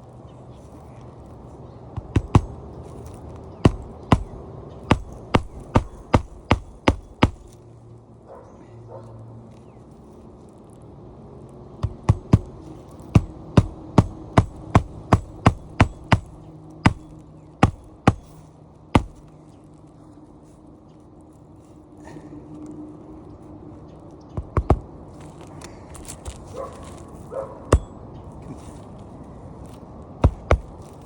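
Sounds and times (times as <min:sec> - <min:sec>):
hammer striking roofing nails: 0:02.0 - 0:02.6, 0:03.6 - 0:07.6, 0:11.8 - 0:18.4, 0:19.0 - 0:19.3, 0:30.2 - 0:31.0.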